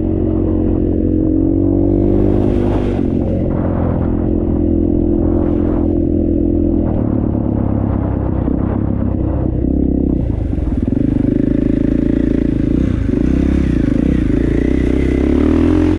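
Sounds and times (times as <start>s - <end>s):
dirt bike engine revving: 0.0s - 6.2s, 9.9s - 15.9s.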